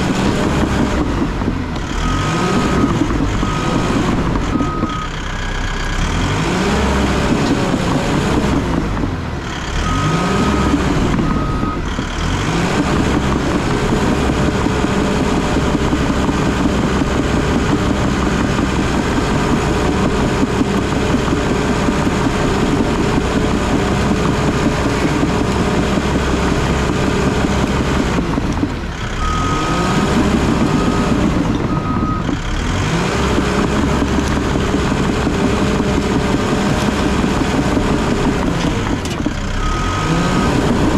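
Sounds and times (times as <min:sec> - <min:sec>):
bulldozer diesel engine running: 0:00.0 - 0:40.9
reverse alarm beeping: 0:02.0 - 0:05.2, 0:09.8 - 0:11.9, 0:29.2 - 0:32.3.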